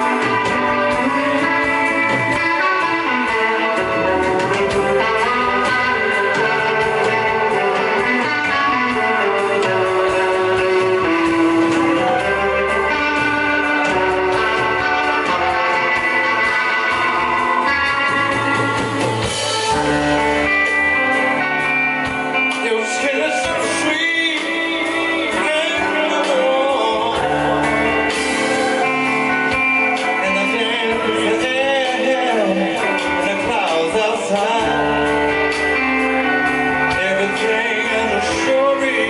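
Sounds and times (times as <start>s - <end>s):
blues-rock band playing: 0.0s - 39.0s
man singing: 22.4s - 35.5s, 36.8s - 39.0s.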